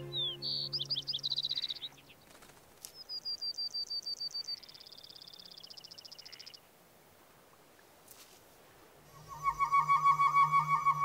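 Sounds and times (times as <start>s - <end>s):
background music: 0.0s - 1.3s
songbird chirping and trilling: 0.0s - 6.7s, 9.1s - 11.0s.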